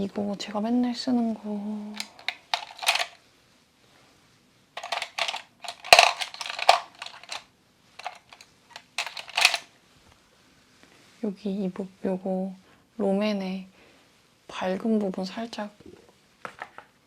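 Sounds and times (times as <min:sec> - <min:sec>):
plastic cases clicking and clattering: 0:02.0 - 0:03.2, 0:04.8 - 0:07.4, 0:08.0 - 0:09.6.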